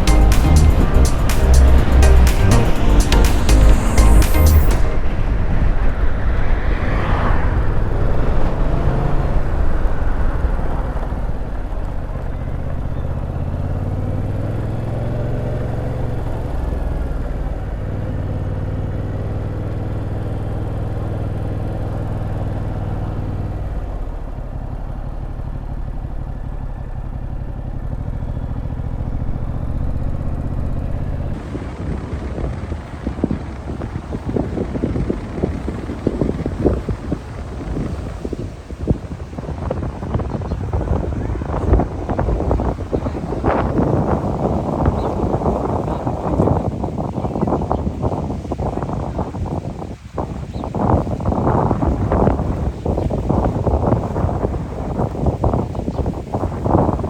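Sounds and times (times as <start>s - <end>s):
motorcycle engine running: 8.8s - 45.6s.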